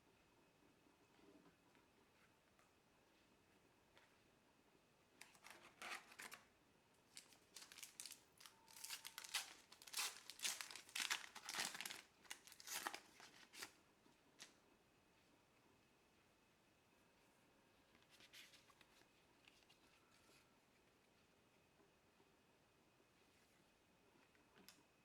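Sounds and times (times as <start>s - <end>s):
plastic wrapper tearing and crinkling: 5.2s - 6.4s, 7.1s - 13.8s.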